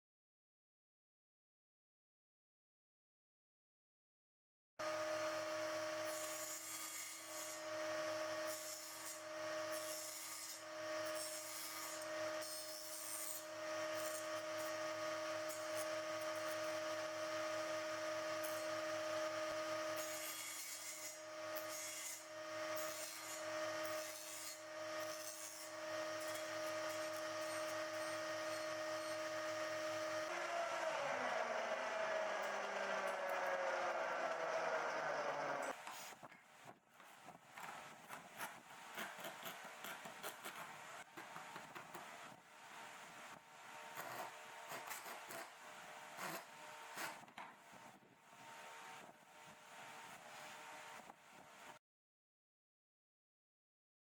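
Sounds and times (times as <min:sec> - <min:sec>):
power tool motor running: 0:25.8 - 0:35.8.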